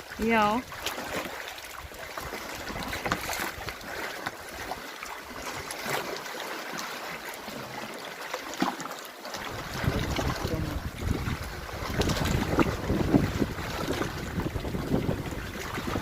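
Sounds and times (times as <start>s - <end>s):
water lapping and splashing: 0.0s - 16.0s
wind buffeting microphone: 9.4s - 16.0s.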